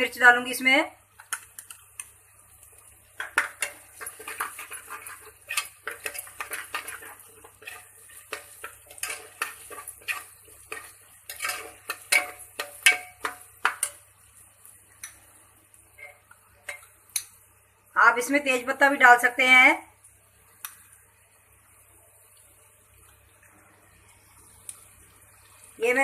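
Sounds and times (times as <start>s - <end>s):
metal spoon stirring in pot: 1.2s - 14.2s, 15.9s - 17.4s.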